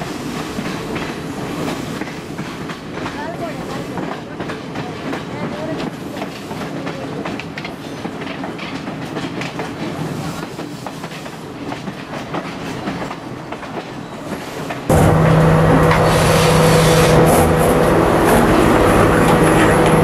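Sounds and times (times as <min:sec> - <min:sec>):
train running on track: 0:00.0 - 0:20.0
engine drone with low hum: 0:14.9 - 0:20.0.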